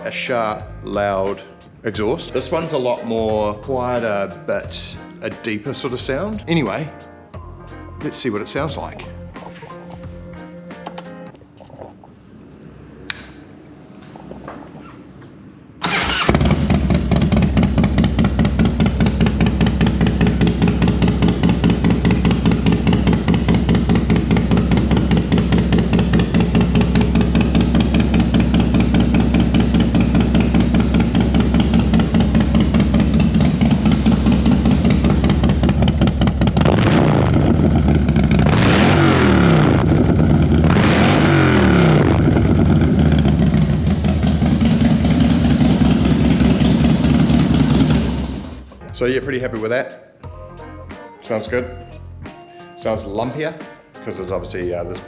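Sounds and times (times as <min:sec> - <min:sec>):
motorcycle engine revving: 0:15.8 - 0:48.7
motorcycle engine starting: 0:15.8 - 0:48.8
motorcycle idling with lumpy beat: 0:16.8 - 0:36.6, 0:42.4 - 0:48.0.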